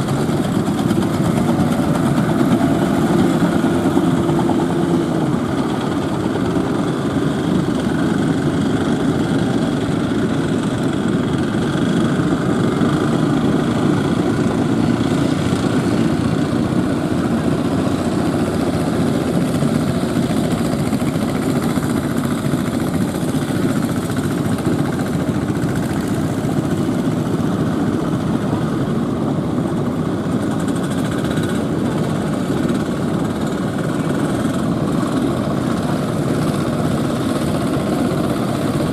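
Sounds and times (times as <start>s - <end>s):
boat engines droning: 0.0s - 38.9s.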